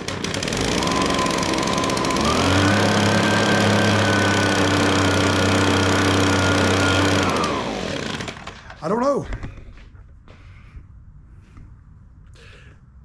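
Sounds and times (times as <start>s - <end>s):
leaf blower engine running: 0.0s - 9.0s.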